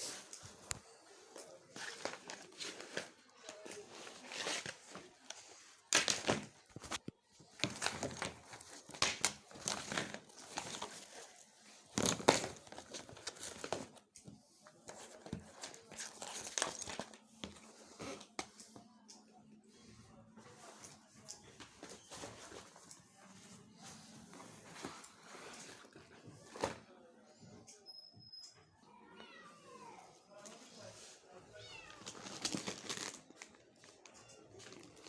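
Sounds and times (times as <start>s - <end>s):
material crinkling and rustling: 0.0s - 18.8s, 30.4s - 35.0s.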